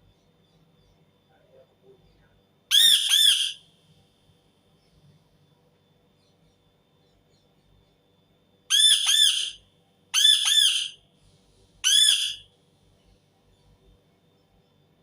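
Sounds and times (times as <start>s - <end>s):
parakeet screeching: 2.7s - 3.6s, 8.7s - 9.6s, 10.2s - 11.0s, 11.8s - 12.4s.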